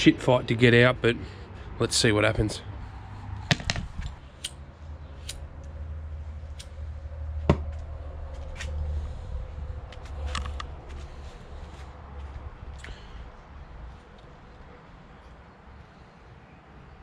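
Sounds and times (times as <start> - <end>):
sharp metallic knock: 3.5 - 3.9.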